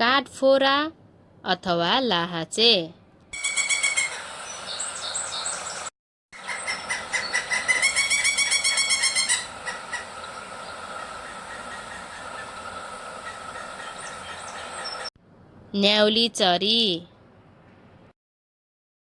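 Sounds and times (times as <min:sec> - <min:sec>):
woodpecker calling: 0:03.4 - 0:15.1
steady high hum: 0:06.4 - 0:15.1.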